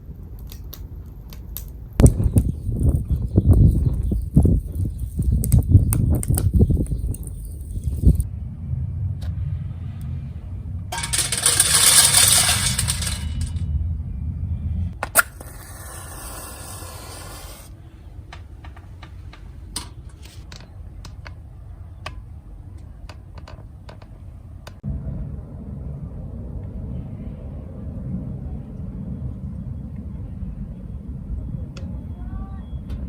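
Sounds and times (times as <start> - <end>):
small objects clattering on metal: 10.9 - 13.6.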